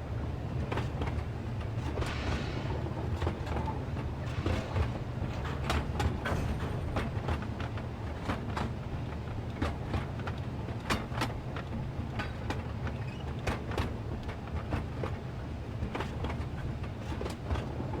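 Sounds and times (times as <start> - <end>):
train rumbling past: 0.0 - 9.0
train wheels clanking: 1.7 - 8.7.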